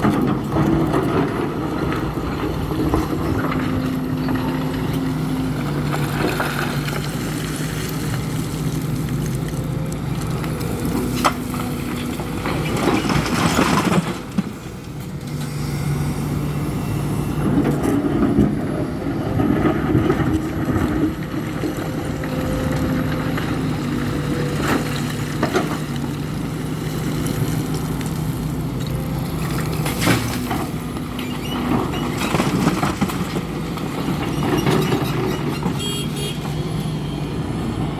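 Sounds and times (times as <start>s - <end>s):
excavator diesel engine: 0.0s - 37.9s.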